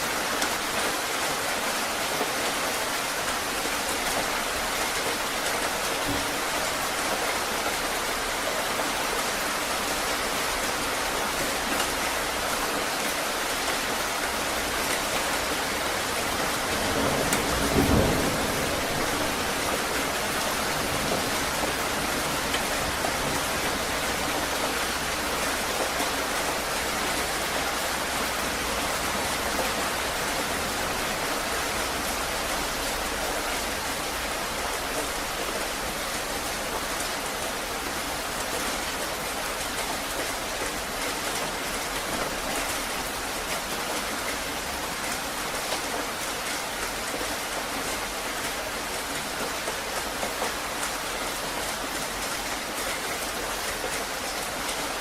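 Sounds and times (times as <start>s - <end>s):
heavy rain: 0.0s - 55.0s
low rumble of thunder: 16.6s - 23.9s.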